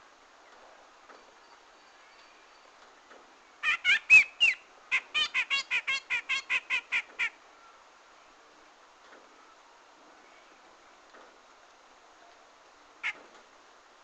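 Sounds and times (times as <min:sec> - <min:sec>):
bird calling: 0:03.6 - 0:07.8, 0:13.0 - 0:13.3.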